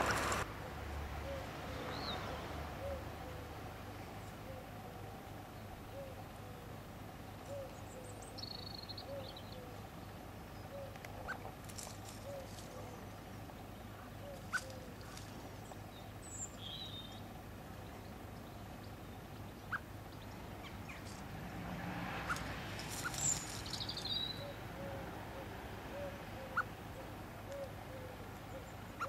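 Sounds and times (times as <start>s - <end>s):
high chirps from small birds: 7.4s - 21.3s, 22.2s - 25.0s.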